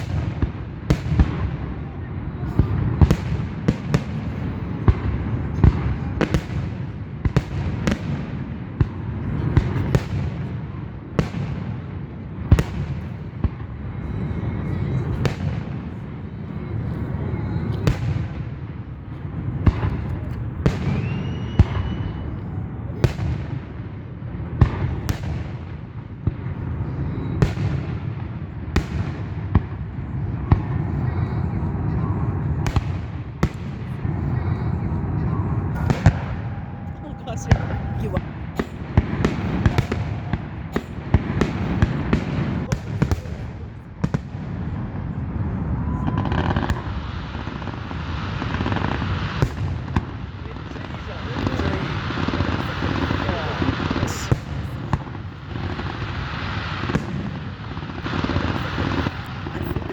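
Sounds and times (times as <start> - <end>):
fireworks bursting with sharp bangs: 0.0 - 59.9
rising firework whistle: 20.7 - 22.4.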